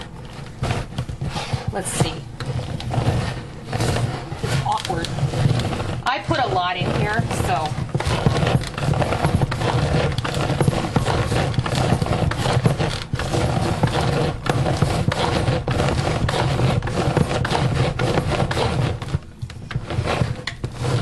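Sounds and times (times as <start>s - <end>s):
hand chopper blades rattling: 3.8s - 15.4s.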